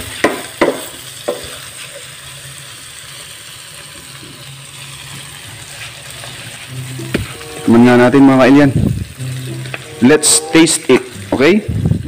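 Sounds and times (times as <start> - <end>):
food sizzling in a wok: 0.0 - 12.0
metal spatula knocking on pan: 0.2 - 1.5, 6.8 - 7.4.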